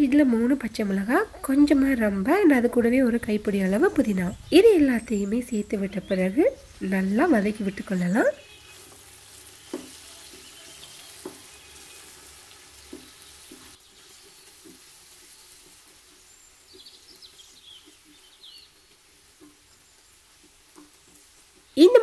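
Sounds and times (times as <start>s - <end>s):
onions sizzling in oil: 0.0s - 22.0s
wooden spatula scraping metal pot: 7.4s - 18.4s.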